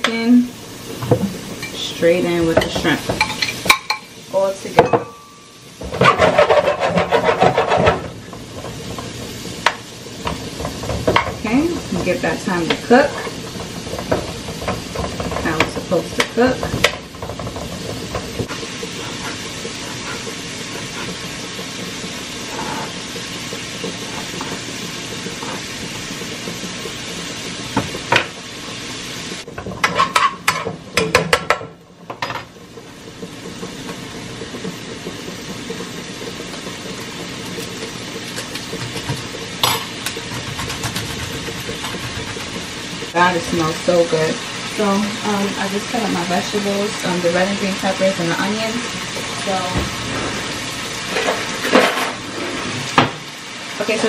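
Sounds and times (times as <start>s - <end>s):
food sizzling in butter: 0.0s - 54.0s
utensil scraping a pan: 5.8s - 28.3s, 29.5s - 31.6s, 35.3s - 53.1s.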